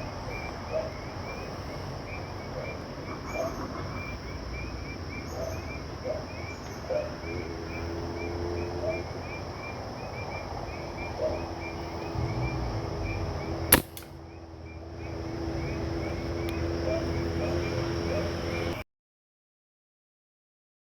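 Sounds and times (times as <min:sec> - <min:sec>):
night insects chirping: 0:00.0 - 0:18.6
air rifle shot: 0:13.7 - 0:14.1.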